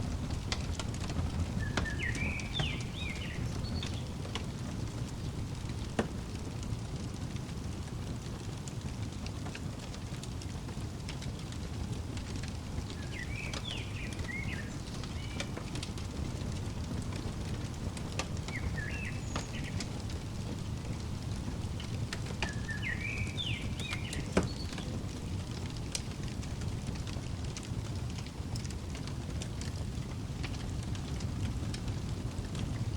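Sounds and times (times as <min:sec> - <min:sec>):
wood fire crackling: 0:00.0 - 0:32.9
songbird warbling: 0:01.5 - 0:05.5, 0:12.9 - 0:16.6, 0:17.2 - 0:24.9.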